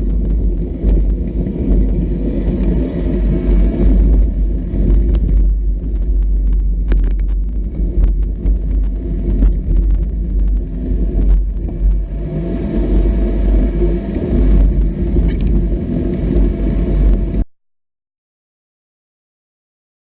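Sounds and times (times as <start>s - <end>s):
knocks and rattles over rough ground: 0.0s - 17.4s
off-road vehicle engine rumbling: 0.0s - 17.4s.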